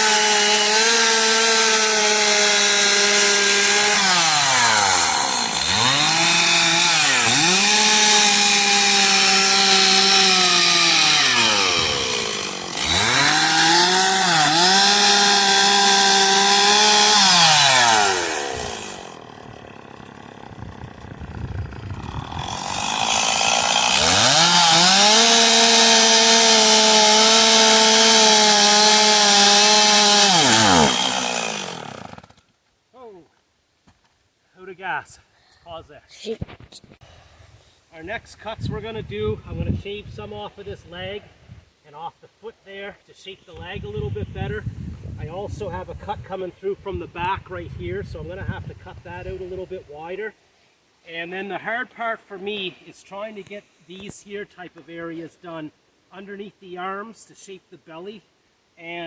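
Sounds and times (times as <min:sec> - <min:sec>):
chainsaw carving wood: 0:00.0 - 0:32.5.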